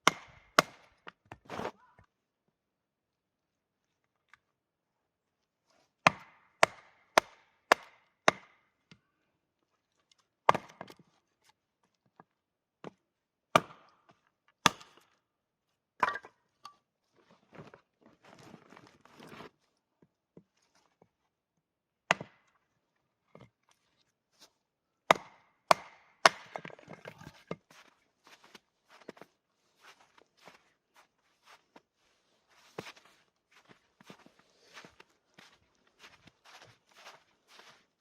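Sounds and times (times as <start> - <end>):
axe chopping wood: 0.0 - 1.7, 6.1 - 8.6, 10.5 - 10.9, 13.6 - 14.0, 14.6 - 15.1, 22.1 - 22.4, 25.1 - 26.8.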